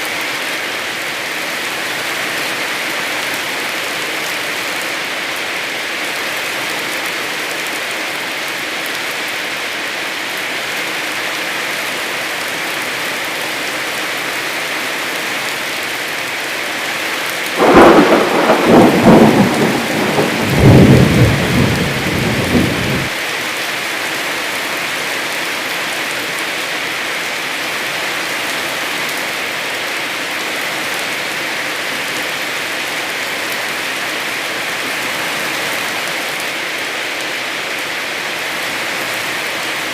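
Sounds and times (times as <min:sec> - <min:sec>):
heavy rain falling: 0:00.0 - 0:39.9
thunder clap rolling: 0:17.6 - 0:23.1.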